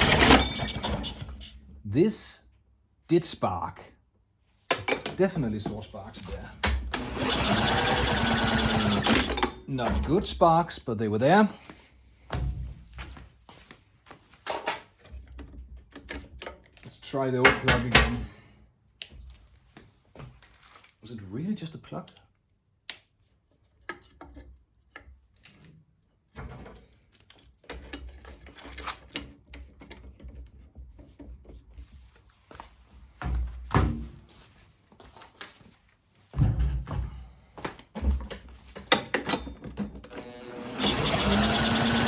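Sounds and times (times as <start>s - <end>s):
lawn mower motor running: 0.0s - 0.8s, 6.9s - 9.4s, 40.1s - 42.0s.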